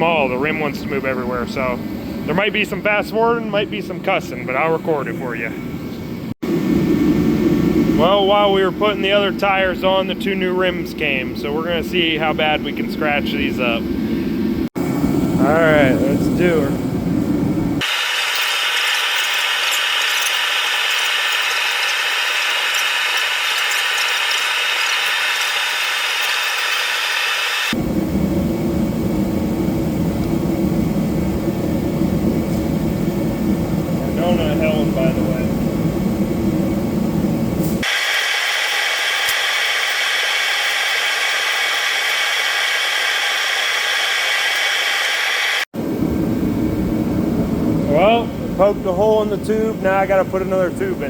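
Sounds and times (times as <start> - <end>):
low rumbling noise: 0.0 - 17.8, 27.7 - 37.8, 45.8 - 51.0
rapid metallic clicks: 17.8 - 27.8, 37.8 - 45.2
sped-up steady hiss: 17.8 - 27.8, 37.6 - 45.7
air hissing from tire: 37.6 - 45.6.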